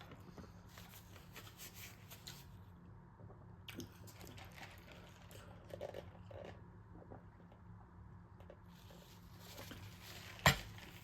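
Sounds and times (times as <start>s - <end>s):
faint low hum: 0.0s - 11.0s
person chewing food: 3.7s - 7.4s.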